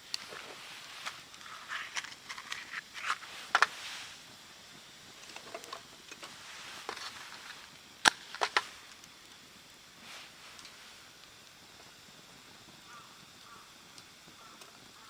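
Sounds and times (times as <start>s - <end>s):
rustling: 0.0s - 4.3s, 5.2s - 8.9s.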